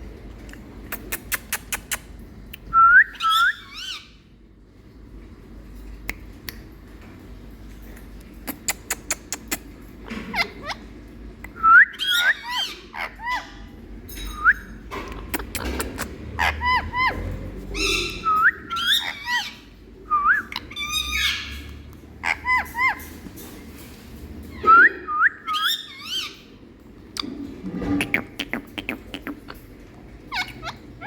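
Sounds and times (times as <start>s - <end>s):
parakeet calling: 3.2s - 4.2s, 11.6s - 13.7s, 15.4s - 23.1s, 25.4s - 26.5s, 30.2s - 31.0s.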